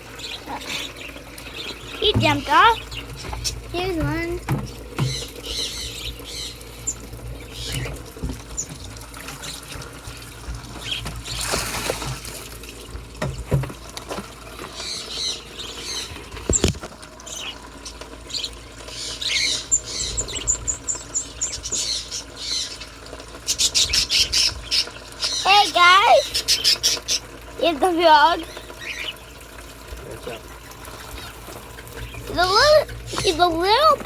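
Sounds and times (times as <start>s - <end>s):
small birds chirping: 0.0s - 11.6s, 14.6s - 34.0s
rustling and knocks from handling: 3.1s - 5.3s, 13.1s - 14.8s.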